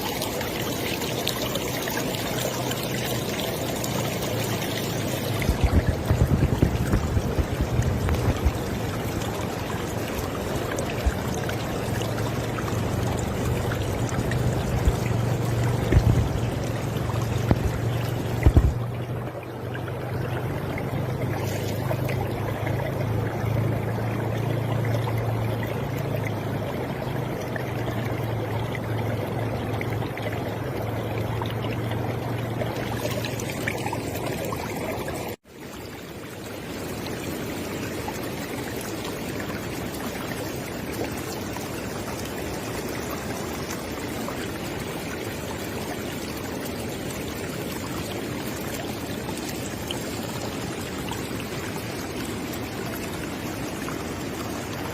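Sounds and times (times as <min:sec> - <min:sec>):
river water flowing: 0:00.0 - 0:54.9
low rumble: 0:05.0 - 0:19.3.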